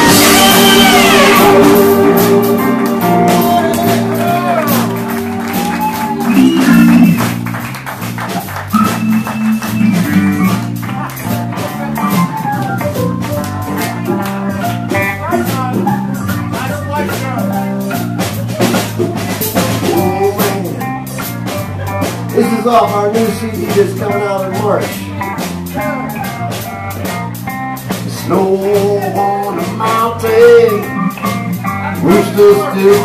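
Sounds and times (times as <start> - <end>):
horn section chord: 0.0 - 15.4
electric guitar lead lines: 0.0 - 16.7
bass and drums: 0.0 - 33.0.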